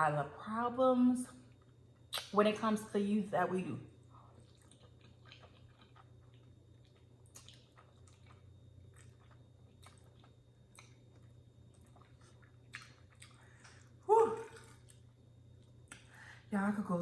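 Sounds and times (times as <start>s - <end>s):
low steady hum: 0.0s - 17.0s
chewing noodles: 4.2s - 16.1s.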